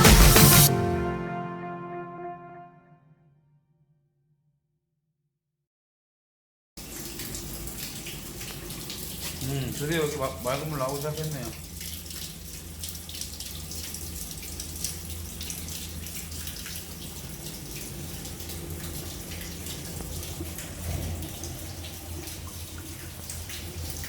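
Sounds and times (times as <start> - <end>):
water running and splashing from pipe: 6.8 - 24.0.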